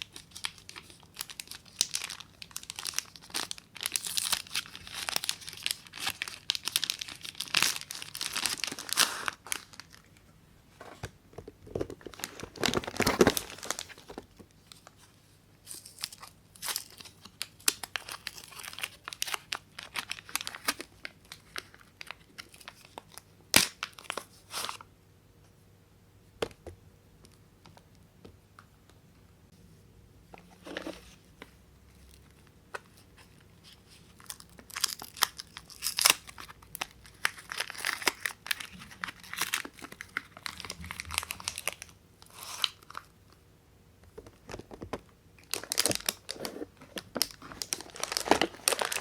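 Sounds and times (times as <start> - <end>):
wrapper tearing: 0.0 - 10.1, 12.1 - 14.2, 15.7 - 24.8, 34.0 - 43.1, 45.4 - 49.0
wrapper crinkling: 0.0 - 10.2, 11.9 - 15.0, 15.7 - 24.8, 33.2 - 43.1, 45.4 - 49.0.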